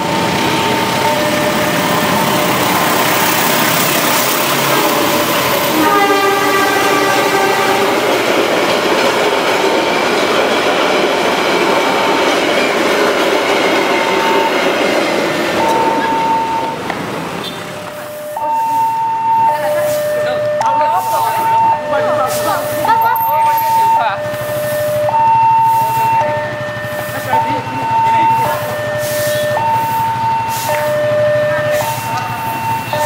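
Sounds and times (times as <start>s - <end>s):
two-tone crossing warning signal: 0.0s - 8.4s, 11.9s - 33.0s
train wheels and coaches: 0.0s - 33.0s
locomotive horn: 5.6s - 8.2s.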